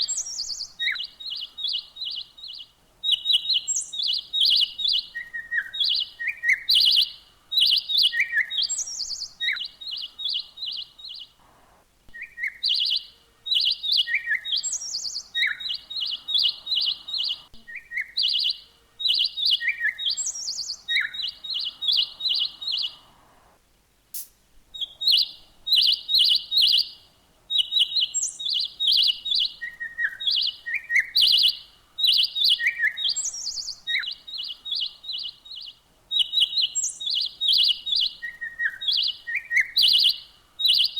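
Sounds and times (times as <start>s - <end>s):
songbird singing: 0.0s - 23.6s, 24.6s - 40.9s
sharp click: 24.1s - 24.4s.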